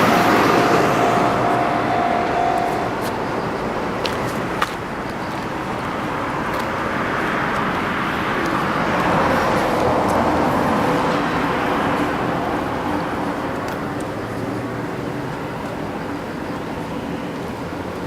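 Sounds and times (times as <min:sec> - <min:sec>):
vehicle passing by: 0:00.0 - 0:04.6
steady traffic: 0:00.0 - 0:18.0.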